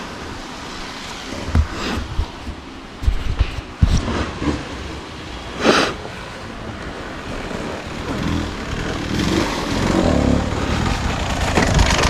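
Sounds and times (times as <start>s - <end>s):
wind noise: 0.0s - 12.0s
dirt bike engine revving: 7.0s - 12.0s.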